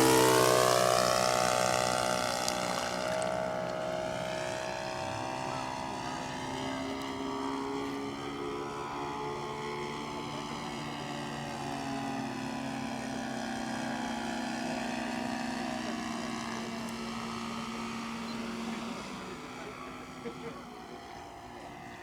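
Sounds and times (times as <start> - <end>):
model aircraft engine running: 0.0 - 22.0.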